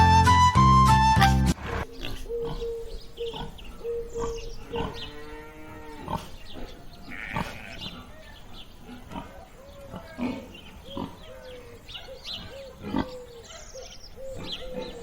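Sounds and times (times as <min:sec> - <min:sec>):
animal grunts: 0:01.6 - 0:08.1, 0:08.8 - 0:11.3, 0:12.4 - 0:13.4.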